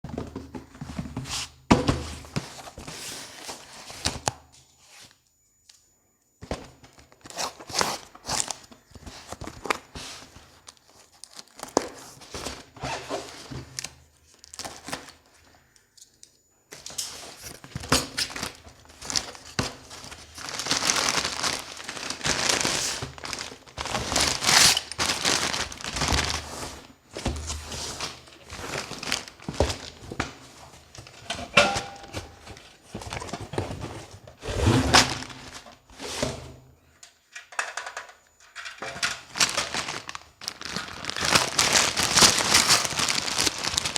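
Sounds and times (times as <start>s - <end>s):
packaging crinkling and tearing: 6.9s - 15.8s, 16.8s - 26.6s, 28.0s - 30.0s, 39.3s - 43.9s.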